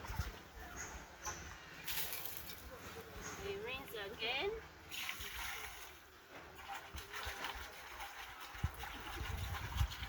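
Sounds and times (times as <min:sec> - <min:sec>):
water sloshing in clay pot: 0:04.8 - 0:10.0.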